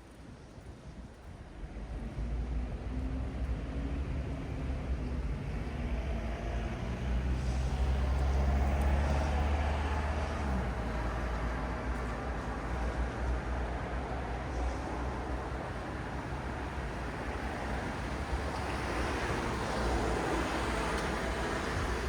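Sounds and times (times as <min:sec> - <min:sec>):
road traffic rumble: 0:01.6 - 0:22.0
vehicle passing by: 0:05.5 - 0:12.1.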